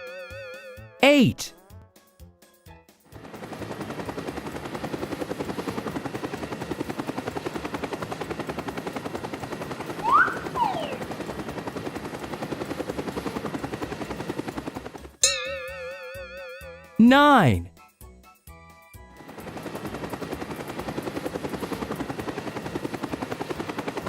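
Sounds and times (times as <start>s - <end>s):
short gliding whistle: 10.0s - 11.0s.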